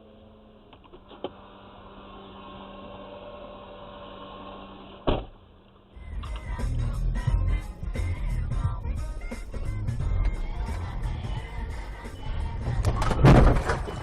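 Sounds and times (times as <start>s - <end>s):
music: 5.9s - 14.0s.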